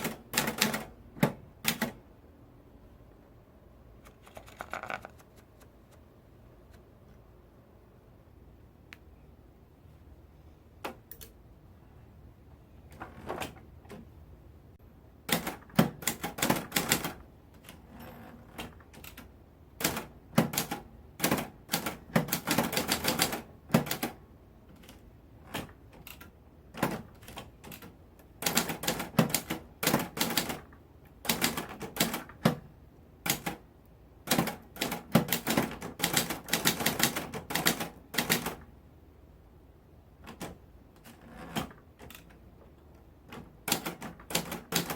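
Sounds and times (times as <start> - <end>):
manual typewriter typing: 0.0 - 2.0, 15.2 - 33.6, 34.2 - 38.7, 40.2 - 42.5, 43.2 - 44.9.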